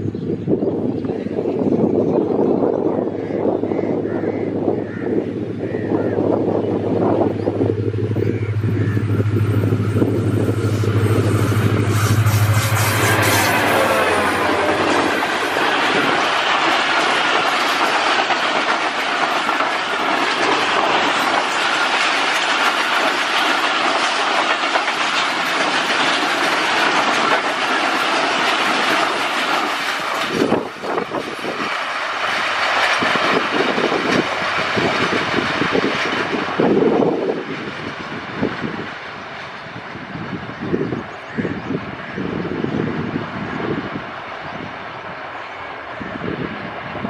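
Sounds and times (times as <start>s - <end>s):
train wheel and rail rush: 0.0s - 47.0s
clickety-clack of wheels: 14.8s - 41.3s.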